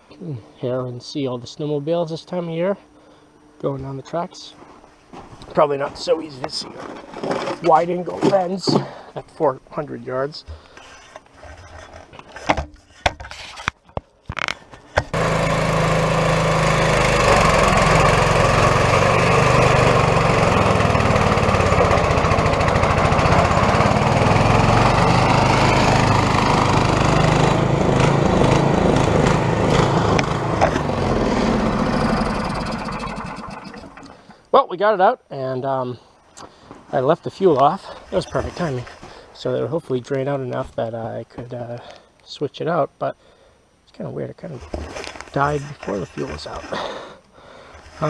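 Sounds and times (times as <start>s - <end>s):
small engine running: 15.1s - 34.3s.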